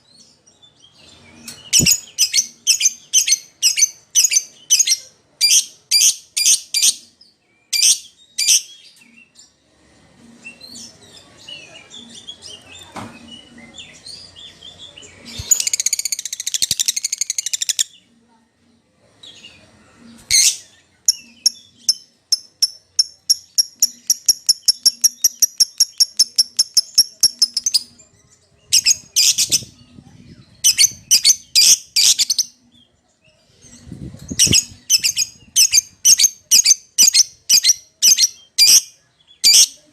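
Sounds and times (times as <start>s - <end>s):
lovebird chirping: 1.2s - 7.0s, 13.4s - 18.0s, 20.1s - 29.9s, 30.6s - 32.7s, 33.6s - 39.8s.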